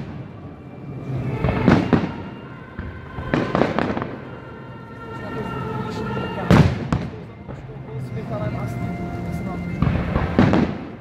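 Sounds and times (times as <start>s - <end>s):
fireworks bangs: 0.0s - 4.5s, 6.4s - 8.1s, 9.6s - 11.0s
music playing: 0.0s - 11.0s.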